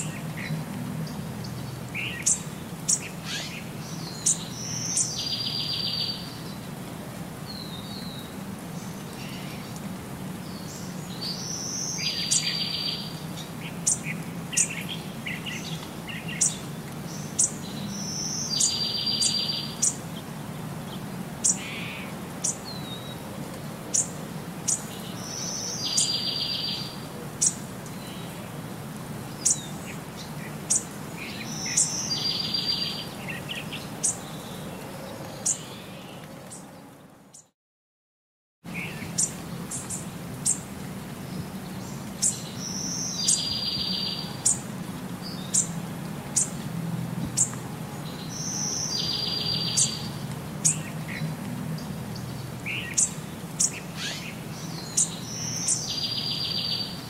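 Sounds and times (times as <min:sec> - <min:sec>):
bird chirping and trilling: 0:02.0 - 0:06.2, 0:52.7 - 0:57.0.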